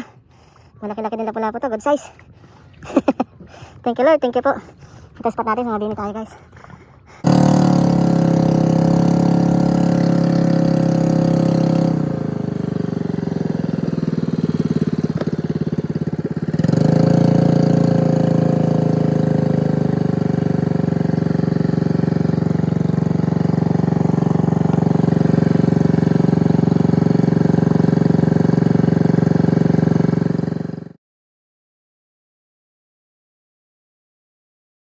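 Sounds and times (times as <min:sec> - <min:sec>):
small gasoline engine running: 0:07.0 - 0:31.0.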